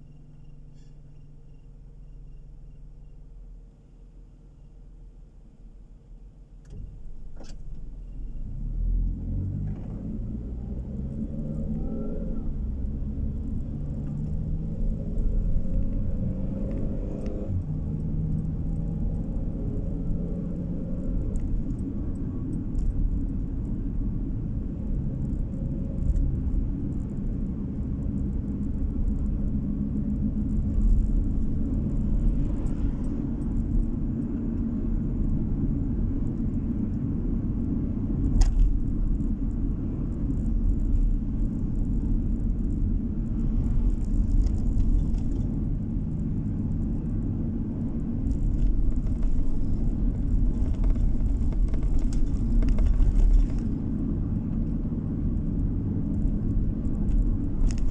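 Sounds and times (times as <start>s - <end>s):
car interior road rumble: 0.0s - 57.9s.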